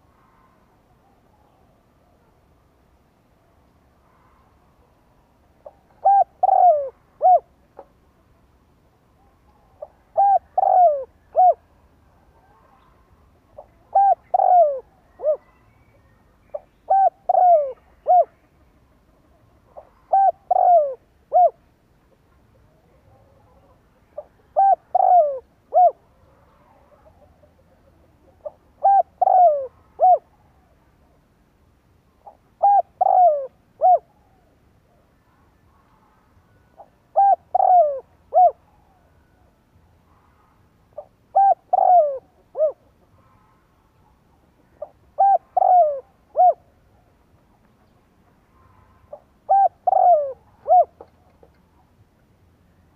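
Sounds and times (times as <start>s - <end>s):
dove cooing: 5.6s - 7.9s, 9.8s - 11.7s, 13.6s - 15.5s, 16.5s - 21.6s, 23.2s - 30.8s, 32.2s - 35.0s, 36.8s - 39.0s, 41.0s - 43.1s, 44.7s - 46.7s, 49.1s - 51.6s.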